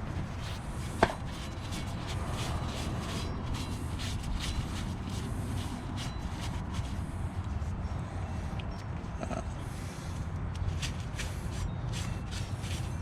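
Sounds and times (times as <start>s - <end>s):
steady low rumble: 0.0s - 13.0s
scraping on rusty metal: 0.1s - 7.3s.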